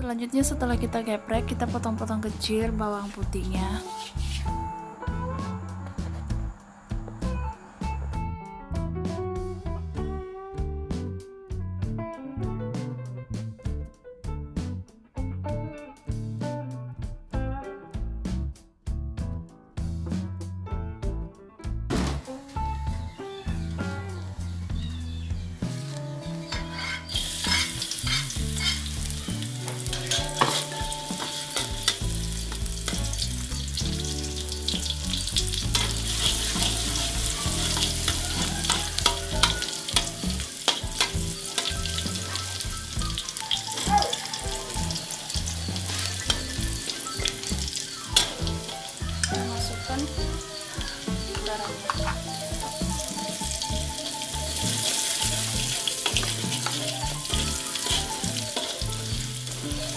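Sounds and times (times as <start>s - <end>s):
garlic sizzling in hot oil: 22.4s - 59.9s
spatula stirring in wok: 25.8s - 34.9s, 35.5s - 49.3s, 54.0s - 59.9s.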